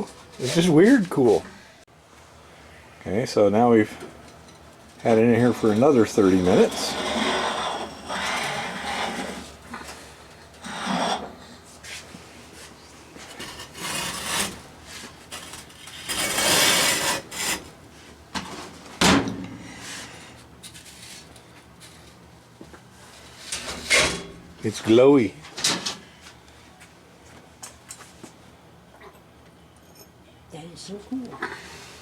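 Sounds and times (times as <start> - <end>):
scraping and rubbing handling noises: 0.0 - 1.4, 5.4 - 18.9, 19.8 - 22.2.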